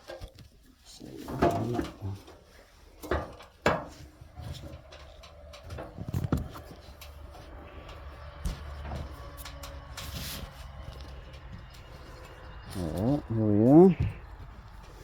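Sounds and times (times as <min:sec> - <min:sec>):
knocks and thumps: 0:03.0 - 0:13.2
steady low hum: 0:03.8 - 0:15.0.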